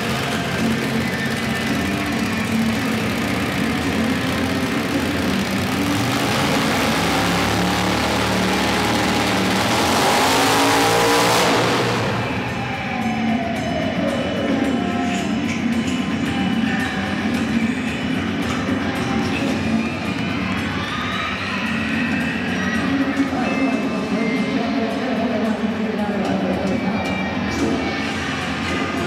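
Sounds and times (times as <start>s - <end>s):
truck engine revving: 0.0s - 18.8s.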